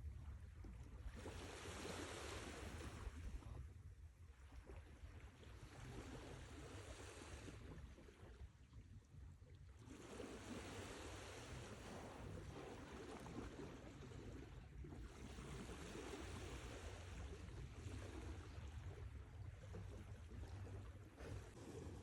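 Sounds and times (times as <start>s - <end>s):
sea waves washing in: 1.2s - 3.2s, 9.9s - 18.6s.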